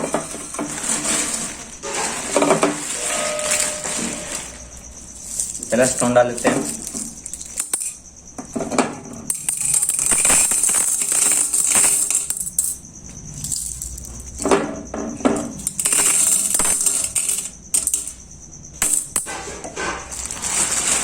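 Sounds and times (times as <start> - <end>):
stones clinking into glass bowl: 2.4 - 8.0, 9.3 - 12.8, 15.5 - 18.2.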